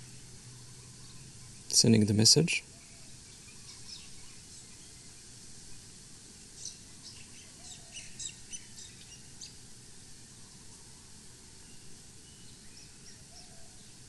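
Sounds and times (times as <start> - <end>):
birds chirping: 0.0 - 5.9
outdoor background noise: 0.0 - 14.0.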